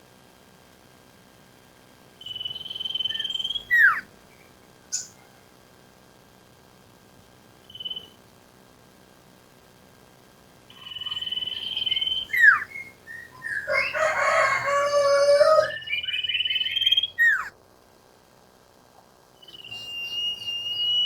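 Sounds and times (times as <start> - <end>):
bird trilling and whistling: 2.2 - 4.1, 7.7 - 8.2, 10.7 - 17.5, 19.4 - 21.0
harsh bird call: 2.2 - 4.1, 10.7 - 17.5.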